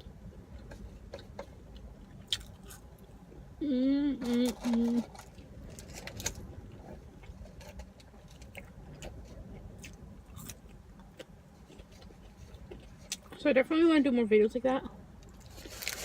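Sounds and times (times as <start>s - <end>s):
person chewing food: 0.7s - 3.2s, 6.6s - 13.4s.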